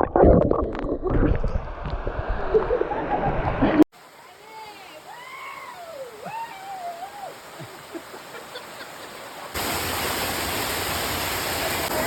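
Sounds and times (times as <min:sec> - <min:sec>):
rainforest background: 0:04.0 - 0:12.0
waterfall rushing: 0:04.0 - 0:12.0.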